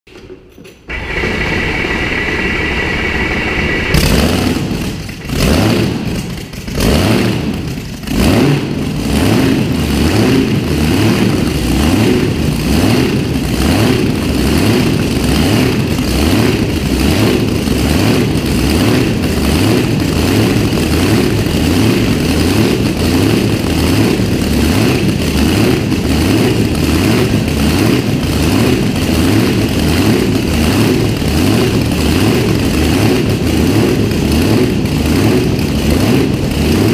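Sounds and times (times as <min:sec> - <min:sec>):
engine starting and idling: 0:00.1 - 0:36.9.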